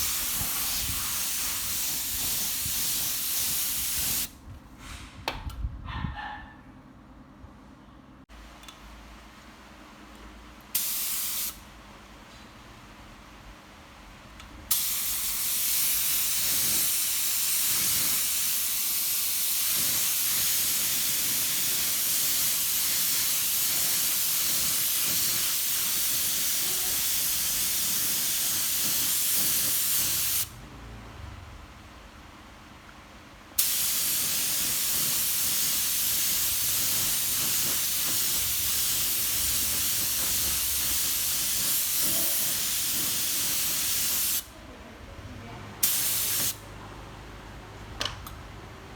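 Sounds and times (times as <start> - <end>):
spray paint hissing: 0.0 - 4.3, 10.8 - 11.6, 14.7 - 30.5, 33.6 - 44.5, 45.8 - 46.6.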